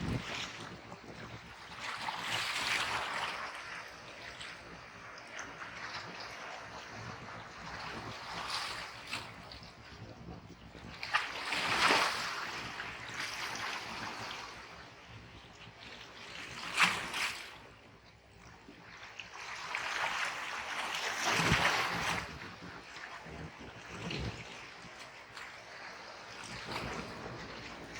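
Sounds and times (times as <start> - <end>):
waves breaking on shore: 19.3 - 27.9.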